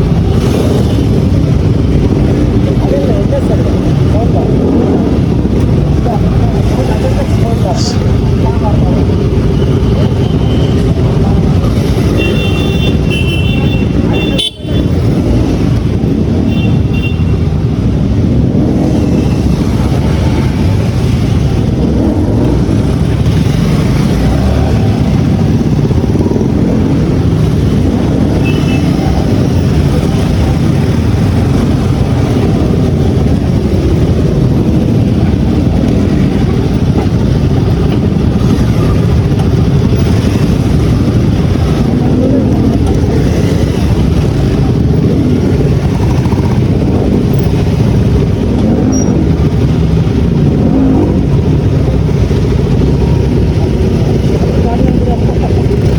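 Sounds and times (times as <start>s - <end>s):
motorcycle engines and traffic rumble: 0.0s - 55.9s
vehicle horn toots: 12.2s - 14.9s.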